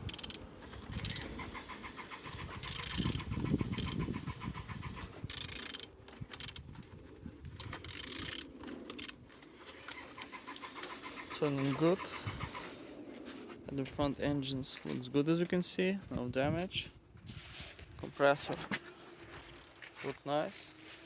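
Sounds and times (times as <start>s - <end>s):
engine clicking as it rotates: 0.0s - 9.2s, 9.8s - 12.7s.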